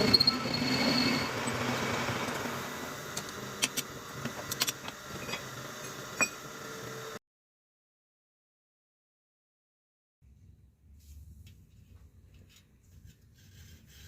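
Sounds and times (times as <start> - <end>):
machine running: 0.0 - 7.2.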